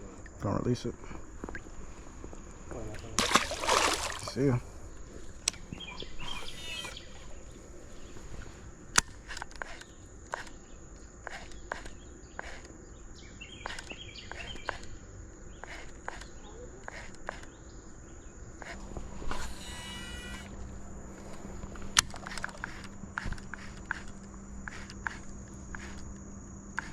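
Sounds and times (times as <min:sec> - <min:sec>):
high insect drone: 0:00.0 - 0:26.9
short bird chirps: 0:05.6 - 0:08.2.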